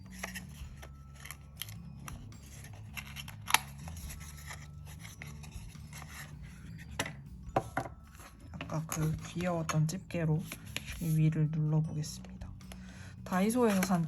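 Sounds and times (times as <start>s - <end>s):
stationery rustling: 0.0s - 14.0s.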